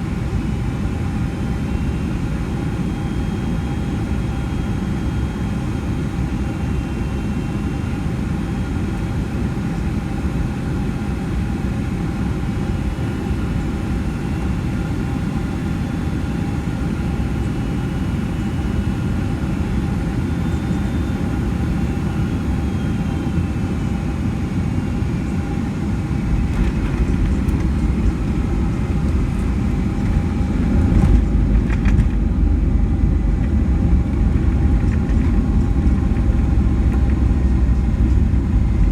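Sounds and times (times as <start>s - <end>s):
airplane cabin engine rumble: 0.0s - 38.9s.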